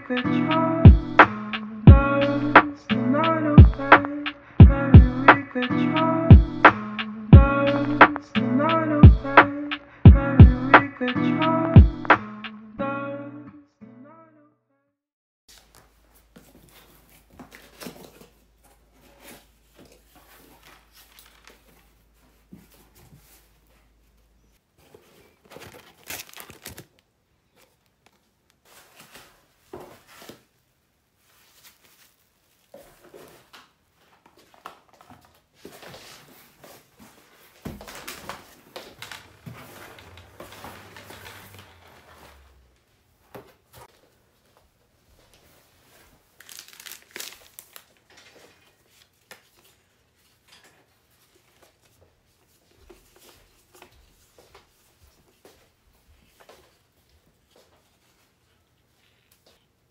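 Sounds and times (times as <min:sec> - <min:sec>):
packaging crinkling and tearing: 0:25.4 - 0:28.2, 0:37.7 - 0:42.6, 0:46.4 - 0:48.3.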